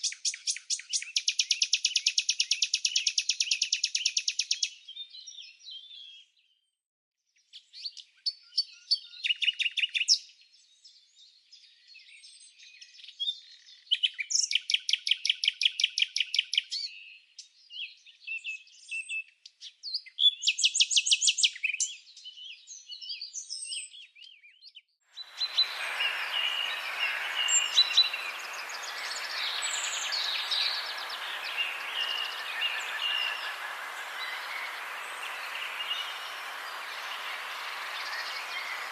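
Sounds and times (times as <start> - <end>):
chorus of many birds: 25.2 - 38.9
songbirds trilling: 25.2 - 38.9
steady hiss: 25.4 - 38.9.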